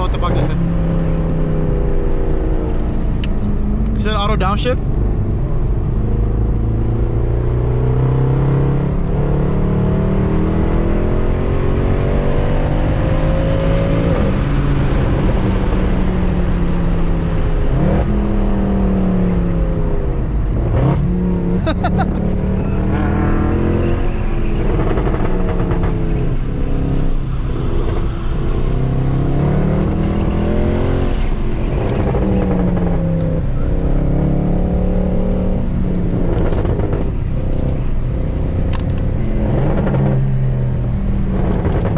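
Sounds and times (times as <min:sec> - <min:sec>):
car engine revving: 0:00.0 - 0:41.9
exhaust cracks: 0:24.5 - 0:27.2, 0:36.0 - 0:38.0.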